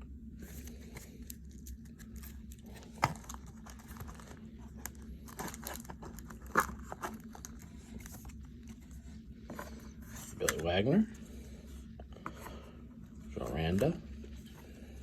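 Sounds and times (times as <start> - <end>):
low steady hum: 0.0 - 15.0
trading cards crinkling: 0.4 - 9.0.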